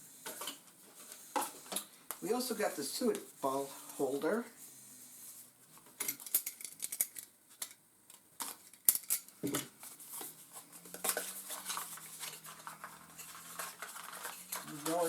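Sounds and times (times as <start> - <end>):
plastic clicks and rattles: 6.0 - 9.7.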